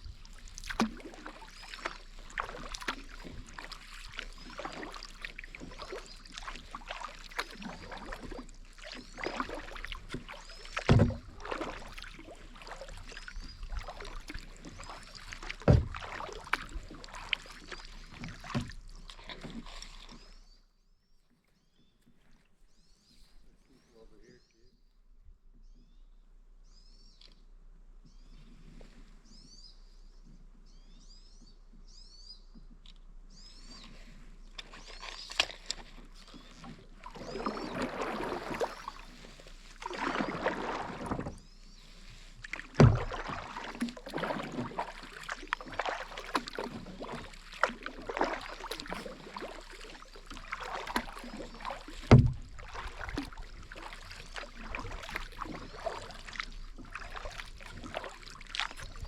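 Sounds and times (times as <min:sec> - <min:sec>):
paddle knocking: 0:00.0 - 0:20.1, 0:34.6 - 0:59.0
paddle splashing through water: 0:00.0 - 0:20.6, 0:33.3 - 0:59.0.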